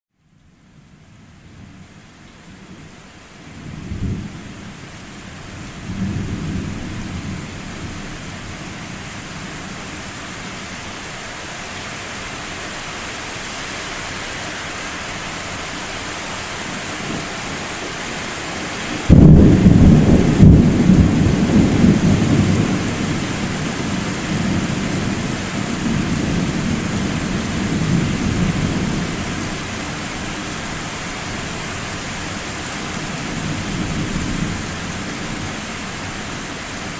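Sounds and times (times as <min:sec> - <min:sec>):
steady rain: 0:00.2 - 0:36.9
thunder rumbling: 0:19.0 - 0:23.7
loud thunderclap: 0:19.1 - 0:23.4.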